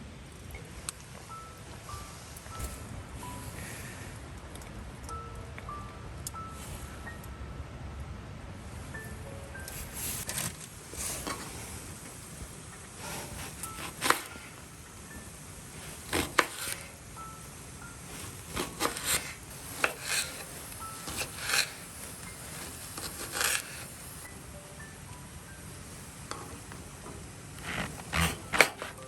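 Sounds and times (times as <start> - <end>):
low background noise: 0.0 - 29.0.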